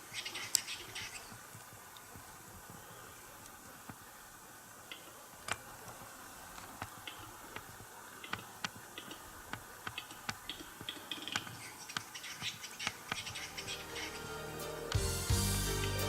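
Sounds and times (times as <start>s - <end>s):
bird dry clicks: 6.6s - 13.5s.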